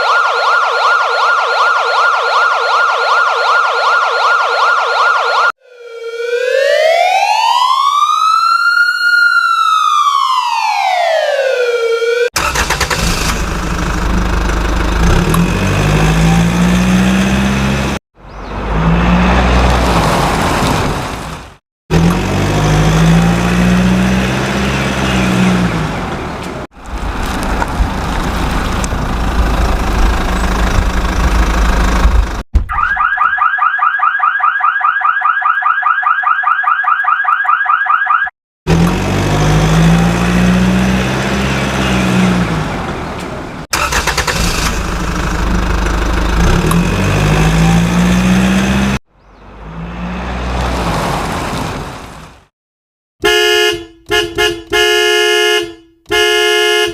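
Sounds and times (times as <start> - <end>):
warbling electronic alarm tone: 0.0 - 8.3
vehicle engine noise: 12.4 - 32.4, 38.7 - 52.4.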